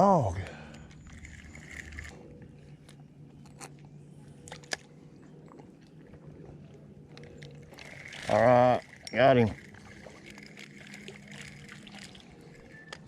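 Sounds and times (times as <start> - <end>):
fishing reel clicking: 0.7 - 2.1, 7.4 - 13.0.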